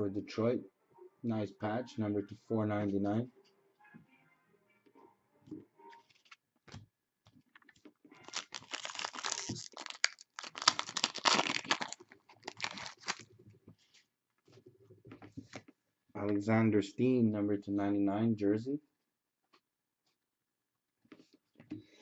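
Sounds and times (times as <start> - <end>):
wrapper crinkling and tearing: 8.2 - 13.2.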